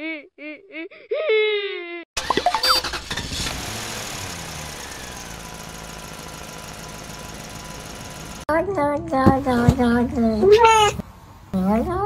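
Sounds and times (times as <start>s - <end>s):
car engine running: 2.2s - 8.5s.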